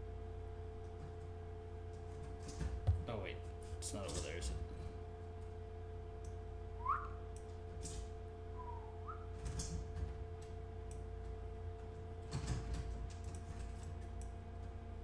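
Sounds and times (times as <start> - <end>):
electrical hum: 0.0 - 15.0
short rising chirp: 8.5 - 9.4.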